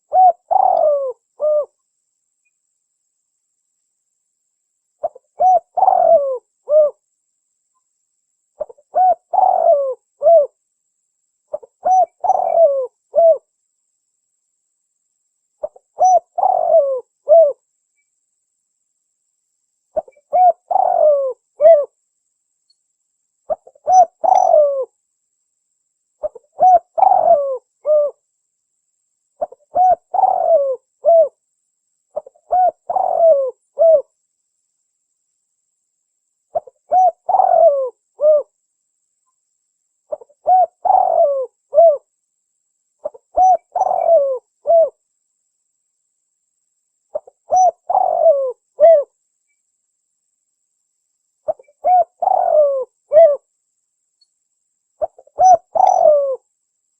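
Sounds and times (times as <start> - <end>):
dove cooing: 0.0 - 1.8, 5.0 - 7.0, 8.6 - 10.6, 11.5 - 13.5, 15.6 - 17.6, 20.0 - 21.9, 23.5 - 24.9, 26.2 - 28.2, 29.4 - 31.4, 32.2 - 34.1, 36.5 - 38.5, 40.1 - 42.1, 43.0 - 45.0, 47.1 - 49.1, 51.4 - 53.4, 55.0 - 56.4.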